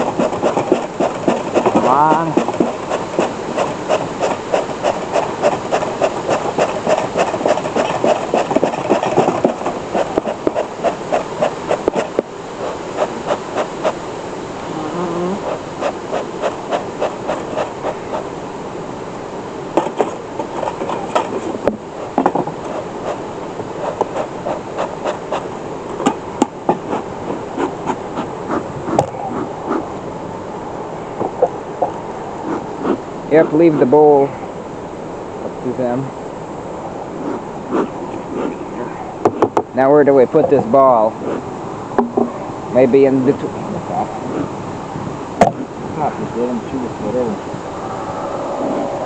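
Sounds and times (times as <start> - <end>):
bellows puffing: 0.0 - 14.0, 15.0 - 18.3, 19.9 - 30.0, 31.2 - 33.8
honey bees buzzing: 0.0 - 49.0.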